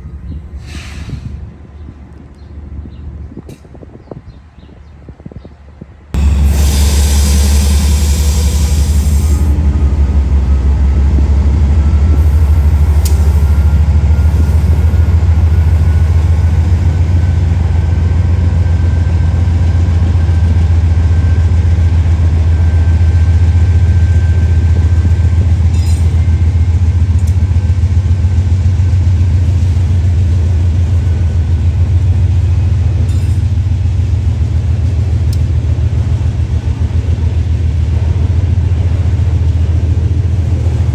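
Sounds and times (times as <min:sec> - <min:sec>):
freight train rumbling past: 0:05.7 - 0:40.9.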